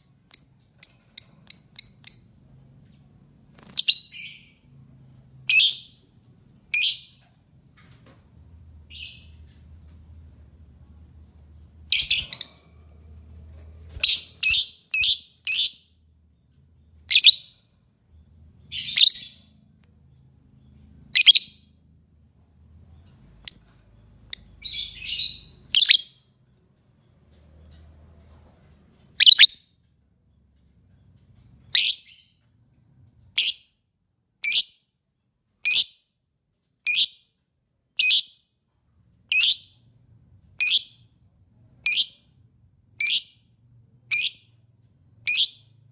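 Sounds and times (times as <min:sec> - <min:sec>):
sharp high bird calls: 0:29.2 - 0:29.7.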